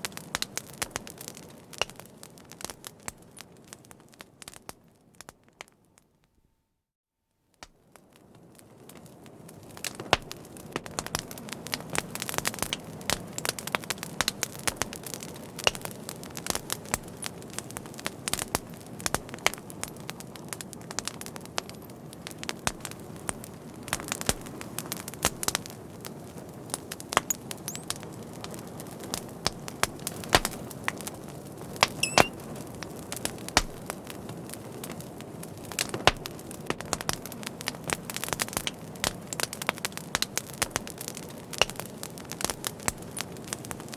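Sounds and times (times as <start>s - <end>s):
fire crackling and popping: 0.0s - 6.1s, 7.5s - 43.9s
thin high squeal: 32.0s - 32.3s.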